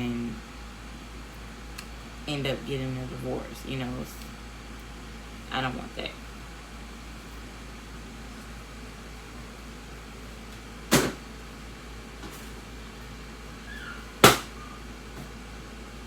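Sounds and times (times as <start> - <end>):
steady low hum: 0.0 - 16.0
sharp knocks: 14.2 - 14.5.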